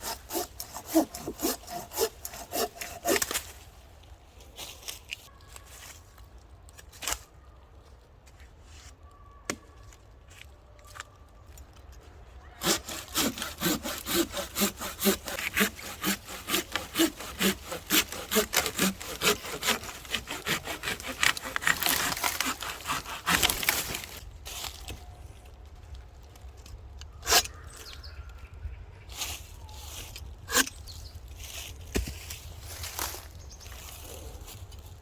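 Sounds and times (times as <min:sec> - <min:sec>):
saw cutting through wood: 0:00.0 - 0:03.4, 0:12.6 - 0:24.2.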